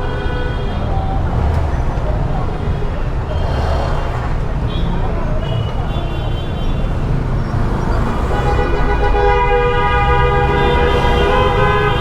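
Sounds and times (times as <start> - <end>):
car horns honking: 0.0 - 12.0
traffic engines rumbling: 0.0 - 12.0
long held horn blast: 8.3 - 12.0.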